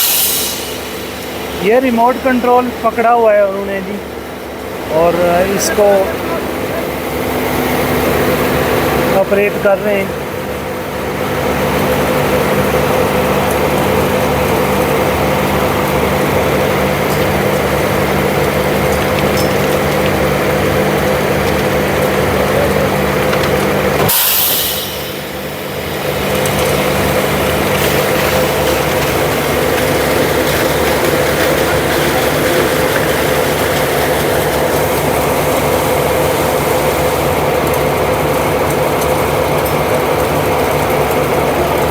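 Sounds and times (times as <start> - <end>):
short hiss: 0.0 - 1.0, 24.1 - 25.2
heavy engine running: 0.0 - 41.9.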